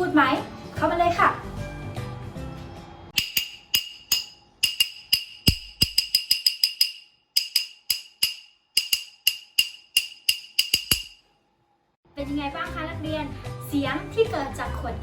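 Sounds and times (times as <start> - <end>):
glass bottle tapping: 3.2 - 11.2.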